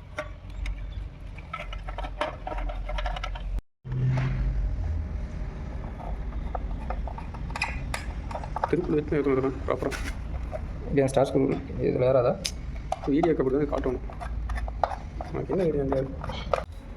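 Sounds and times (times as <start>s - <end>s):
low steady rumble: 0.0s - 16.9s
small clicks taps and scrapes: 0.1s - 3.6s, 5.9s - 9.1s, 12.8s - 16.7s.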